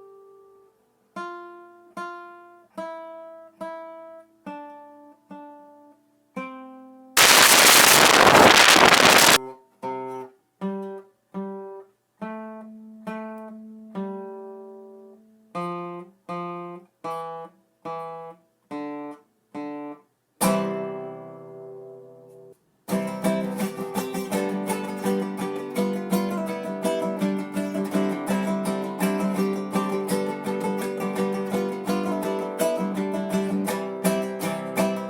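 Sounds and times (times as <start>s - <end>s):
hiss burst: 7.2s - 9.4s
acoustic guitar music: 22.9s - 35.0s.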